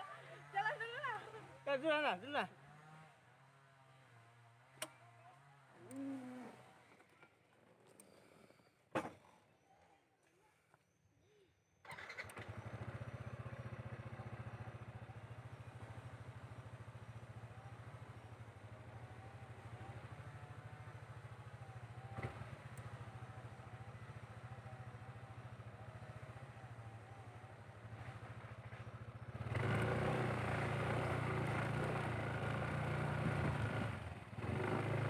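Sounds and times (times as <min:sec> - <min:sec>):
motorcycle engine running: 0:12.4 - 0:35.0.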